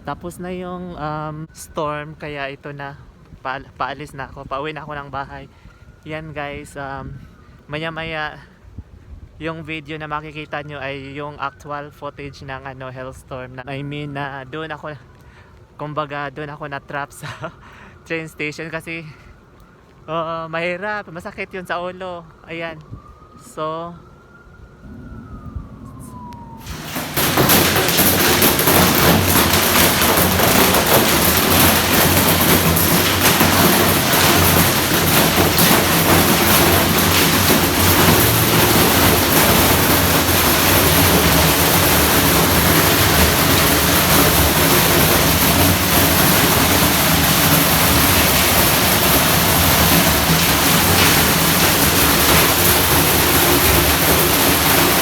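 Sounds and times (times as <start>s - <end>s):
hail pelting down: 26.4s - 55.0s.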